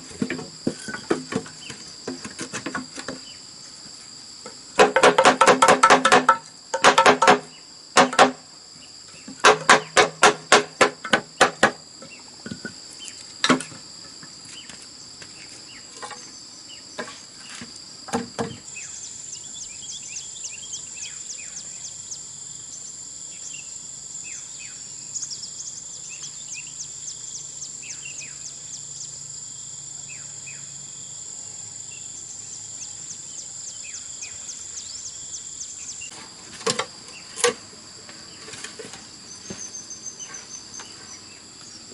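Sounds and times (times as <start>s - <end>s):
insect chorus: 0.0s - 41.9s
rapid insect chirps: 0.0s - 41.9s
sharp knocks: 4.8s - 8.4s, 9.3s - 11.8s.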